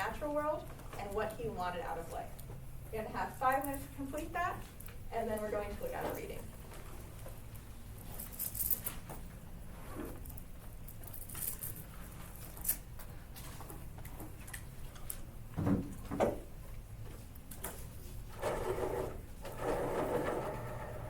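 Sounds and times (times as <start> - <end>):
rustling or scraping: 8.0 - 10.4.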